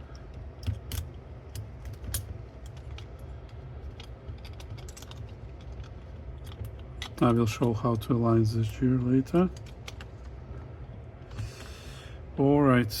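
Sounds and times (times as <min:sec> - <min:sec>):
small mechanical parts clicking: 0:00.1 - 0:10.3.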